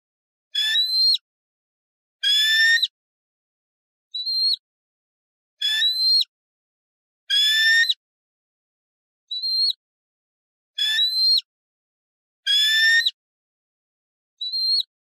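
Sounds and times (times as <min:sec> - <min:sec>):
eagle whistled calls: 0:00.6 - 0:01.2, 0:02.2 - 0:02.9, 0:04.2 - 0:04.6, 0:05.6 - 0:06.3, 0:09.4 - 0:09.8, 0:10.8 - 0:11.5, 0:14.4 - 0:14.9.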